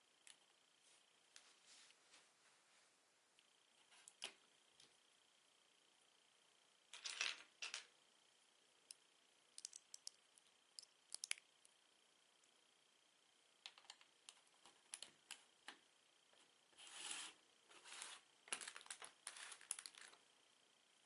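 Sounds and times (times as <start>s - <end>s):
plastic bricks clattering: 7.0s - 7.9s.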